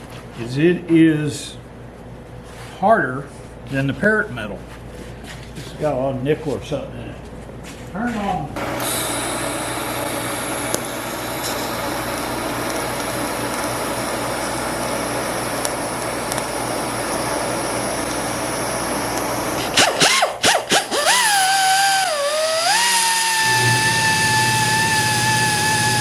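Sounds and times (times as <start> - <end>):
power grinder whining: 8.6 - 26.0.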